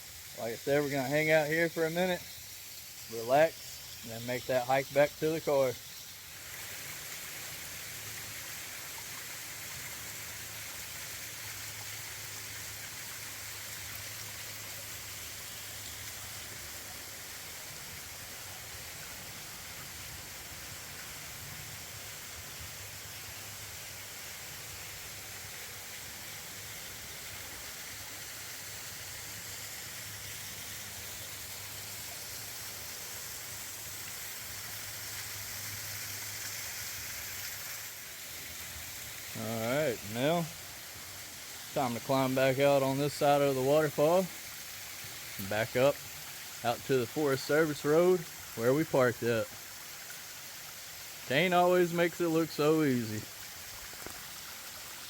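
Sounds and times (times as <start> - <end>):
water cascading over rock: 0.0 - 55.0.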